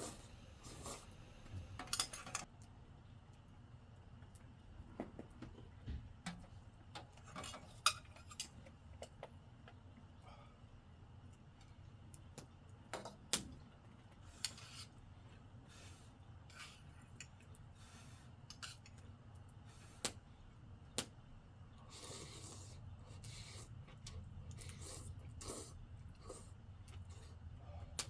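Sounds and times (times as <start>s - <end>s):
utensils clinking against dishes: 1.8s - 2.5s.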